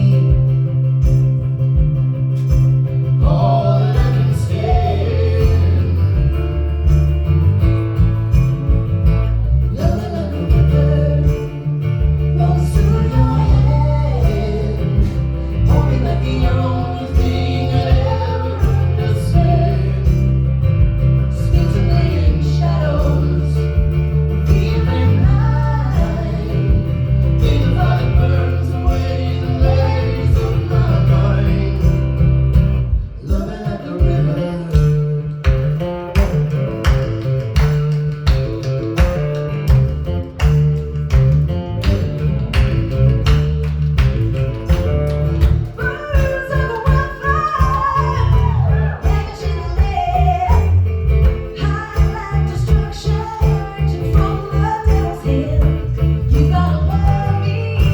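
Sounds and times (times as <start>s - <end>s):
guitar strumming: 0.0s - 57.9s
heavy bass: 0.0s - 57.9s
person singing: 9.7s - 11.8s, 12.4s - 20.4s, 21.4s - 32.1s.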